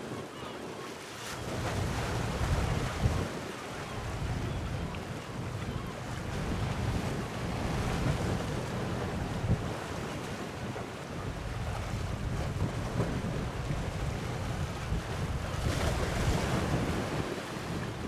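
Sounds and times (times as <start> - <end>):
wind buffeting microphone: 1.4 - 18.0.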